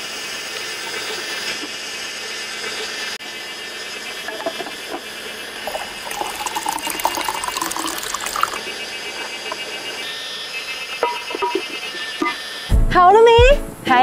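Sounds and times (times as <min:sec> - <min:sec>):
cicadas chorus: 0:03.2 - 0:12.7
water pouring into container: 0:05.6 - 0:08.7.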